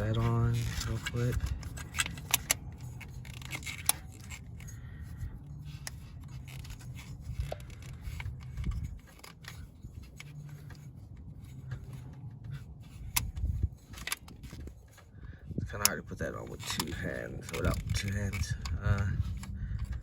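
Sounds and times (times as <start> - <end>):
plug connectors clicking and rattling: 0.0 - 15.1, 15.8 - 20.0
low background hum: 0.0 - 20.0.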